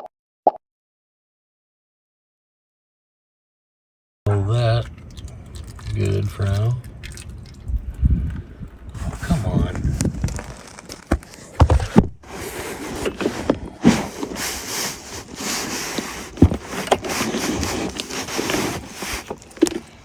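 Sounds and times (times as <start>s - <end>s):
wind buffeting microphone: 7.4s - 10.6s
handling knocks and clatters: 9.7s - 20.0s.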